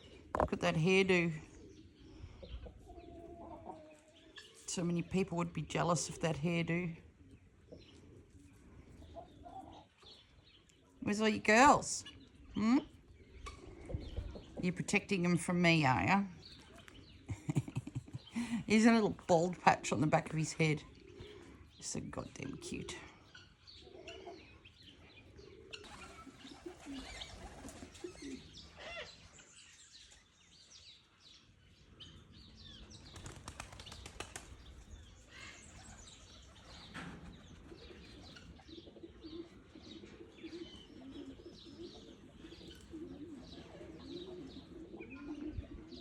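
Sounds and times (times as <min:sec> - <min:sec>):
doves cooing: 0:00.0 - 0:04.6, 0:05.8 - 0:19.1, 0:19.9 - 0:29.3, 0:32.8 - 0:46.0
small birds chirping: 0:00.0 - 0:46.0
wing flapping: 0:33.1 - 0:34.6.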